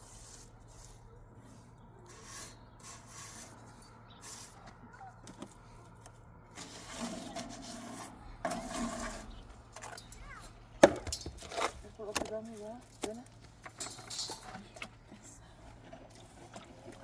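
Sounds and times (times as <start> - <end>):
rubbing or scraping strokes: 0.0 - 4.7, 6.5 - 9.5.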